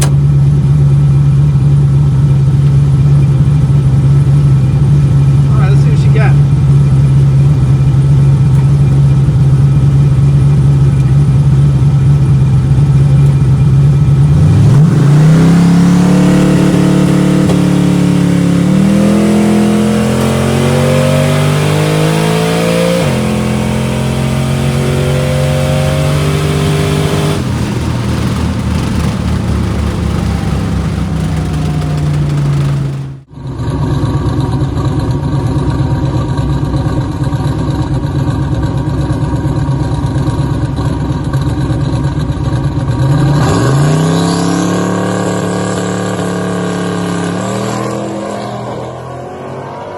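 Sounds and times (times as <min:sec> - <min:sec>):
car engine accelerating hard: 0:00.0 - 0:36.8, 0:42.5 - 0:49.9.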